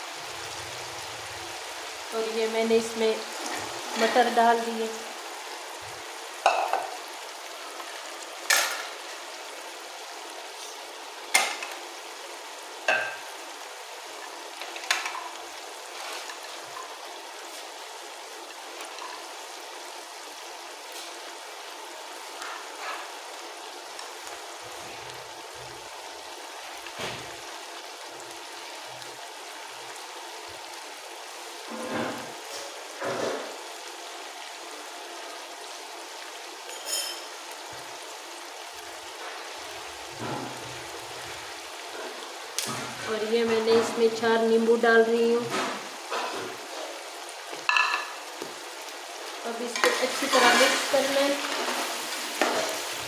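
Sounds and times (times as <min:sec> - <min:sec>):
food sizzling in oil: 0:00.0 - 0:53.0.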